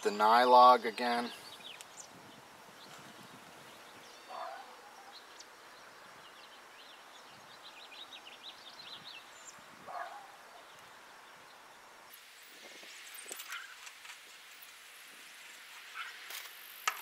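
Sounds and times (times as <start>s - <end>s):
loud bird calls: 0.0s - 11.8s, 12.9s - 14.0s, 15.4s - 16.5s
birds chirping: 0.0s - 16.8s
faint background noise: 0.0s - 17.0s.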